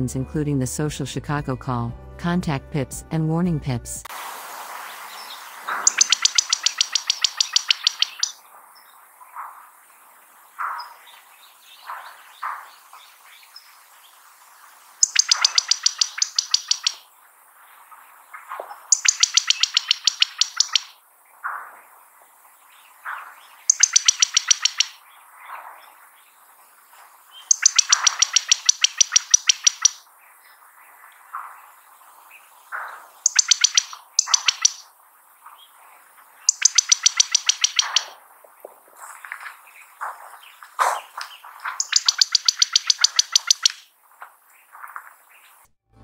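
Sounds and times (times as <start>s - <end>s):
bird rapid high trill: 5.1s - 8.4s, 15.0s - 17.0s, 18.9s - 21.0s, 23.7s - 25.0s, 27.5s - 30.0s, 33.2s - 34.9s, 36.5s - 38.2s, 41.7s - 43.9s
bird single call notes: 5.1s - 8.4s, 15.0s - 17.1s, 18.9s - 21.0s, 23.6s - 25.0s, 27.5s - 30.0s, 32.8s - 34.9s, 36.5s - 38.2s, 40.8s - 43.8s.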